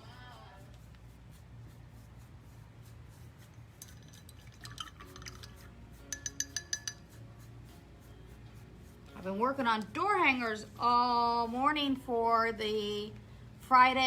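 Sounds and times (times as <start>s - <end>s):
low steady hum: 0.0s - 14.0s
hard objects clinking on glass: 3.8s - 7.2s.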